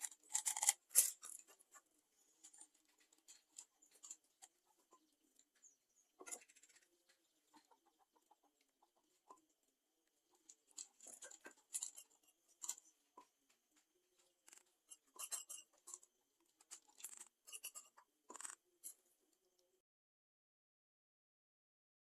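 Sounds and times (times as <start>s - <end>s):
utensils clicking and scraping: 0.0s - 1.8s, 10.4s - 12.9s, 14.2s - 19.0s.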